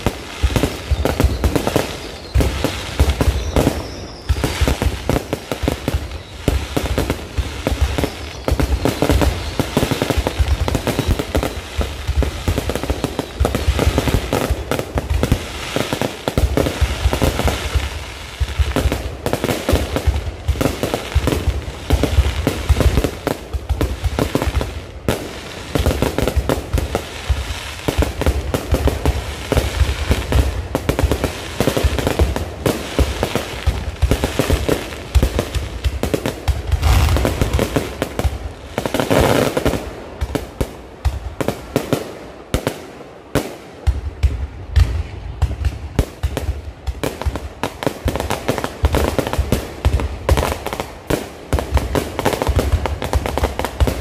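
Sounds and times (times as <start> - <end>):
fireworks bangs and crackles: 0.0 - 54.0
deep rumble: 36.8 - 38.0.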